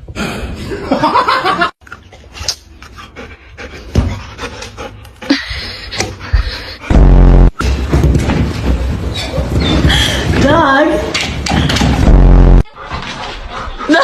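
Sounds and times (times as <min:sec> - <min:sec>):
dog panting: 0:02.2 - 0:06.8, 0:12.8 - 0:14.0
loud low thud: 0:06.9 - 0:08.5, 0:11.9 - 0:12.7.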